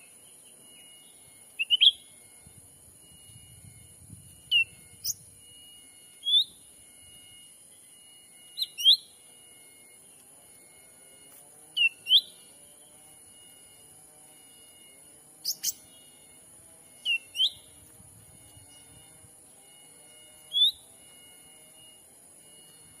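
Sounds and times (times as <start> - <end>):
bird whistled calls: 0.0 - 2.1, 3.4 - 5.4, 6.2 - 9.2, 11.8 - 12.5, 15.4 - 16.3, 17.0 - 17.8, 20.4 - 21.0.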